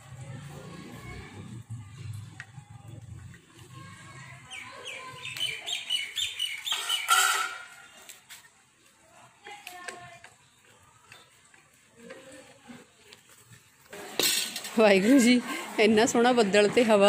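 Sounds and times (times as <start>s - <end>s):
harsh bird call: 4.5s - 7.7s
bird chirping high: 4.5s - 8.0s.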